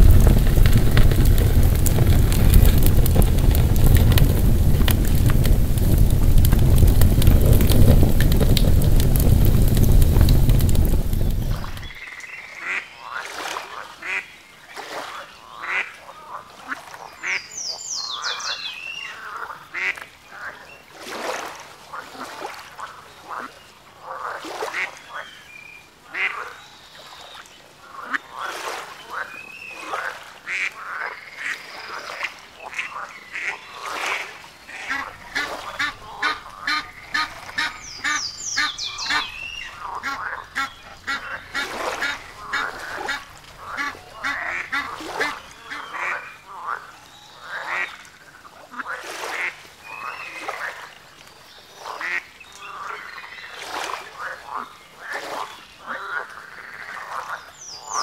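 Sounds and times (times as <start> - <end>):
birds calling: 17.2 - 19.2, 32.7 - 48.0, 57.3 - 58.0
high bird chirps: 37.6 - 39.8.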